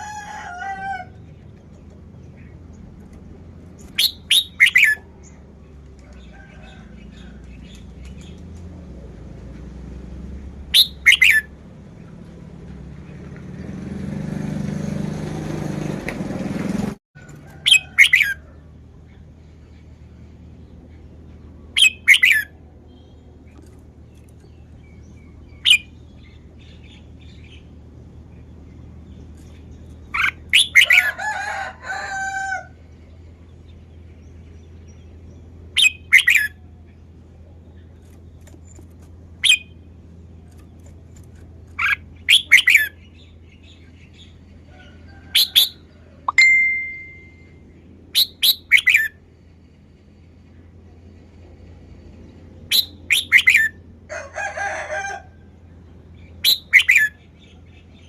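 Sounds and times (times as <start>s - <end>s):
bird singing sharp phrases: 3.8s - 5.4s, 10.7s - 11.5s, 21.7s - 31.0s, 34.0s - 38.5s, 41.7s - 44.5s, 48.2s - 49.1s, 56.2s - 58.0s.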